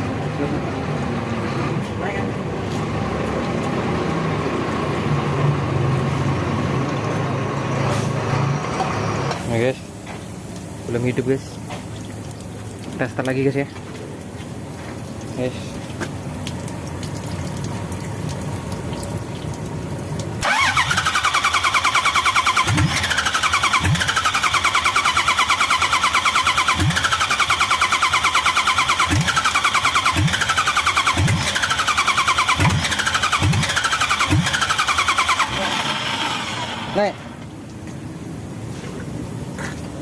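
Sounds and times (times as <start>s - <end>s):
starter motor cranking engine: 20.4s - 37.4s.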